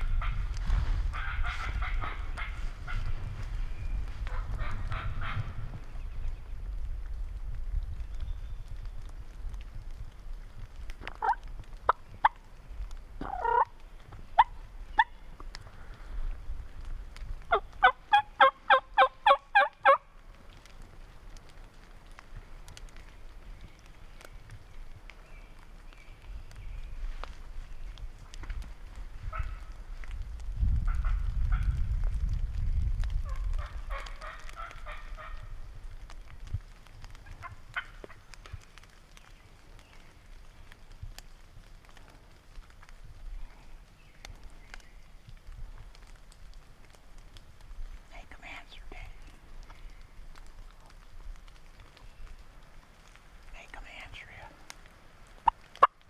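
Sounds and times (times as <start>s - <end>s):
wind rumbling on microphone: 0.0s - 56.0s
turkey yelping: 11.2s - 11.4s, 13.2s - 13.7s, 17.5s - 20.0s.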